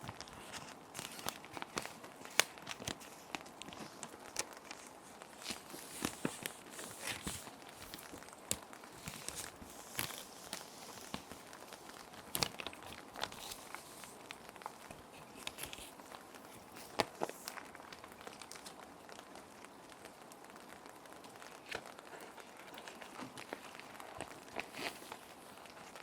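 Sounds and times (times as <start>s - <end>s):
plastic sheet protectors crinkling: 0.0s - 26.0s
paper sliding into plastic: 5.4s - 8.1s.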